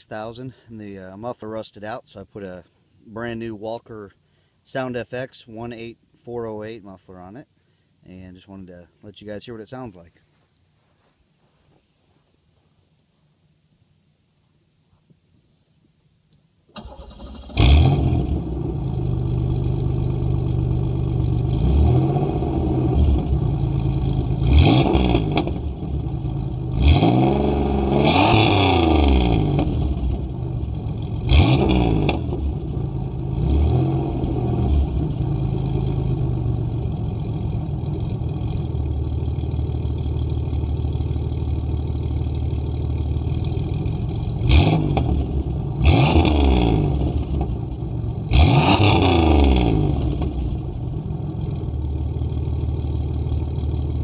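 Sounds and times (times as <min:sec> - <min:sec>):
car engine starting: 0:16.7 - 0:54.0
car engine idling: 0:16.8 - 0:26.8, 0:28.7 - 0:54.0
car engine revving: 0:16.8 - 0:52.5.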